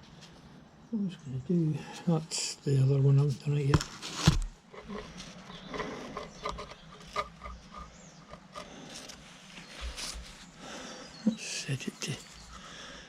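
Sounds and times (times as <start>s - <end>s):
rubbing: 3.8s - 10.8s.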